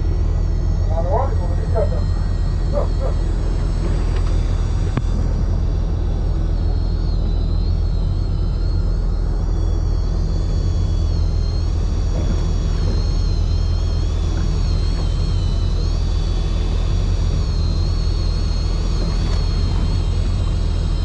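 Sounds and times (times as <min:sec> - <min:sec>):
boat engine rumbling: 0:00.0 - 0:21.0
click: 0:04.1 - 0:05.1.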